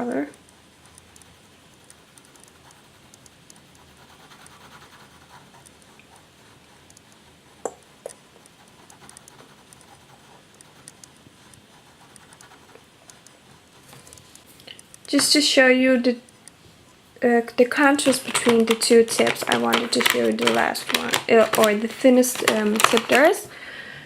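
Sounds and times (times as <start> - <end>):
sharp clicks: 0.3 - 3.8, 6.8 - 13.4
pen scratching on paper: 0.6 - 14.4, 17.9 - 23.3.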